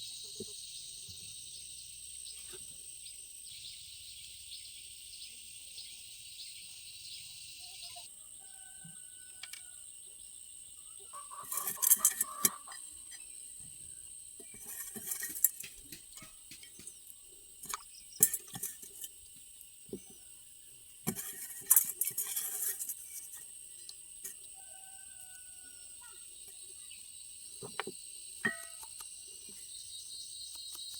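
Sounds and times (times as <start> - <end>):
bird chirps: 0.0 - 8.1, 26.0 - 30.9
insect drone: 0.0 - 30.9
metallic clinks and knocks: 11.4 - 13.2, 14.4 - 17.0, 17.6 - 19.2, 21.0 - 23.4.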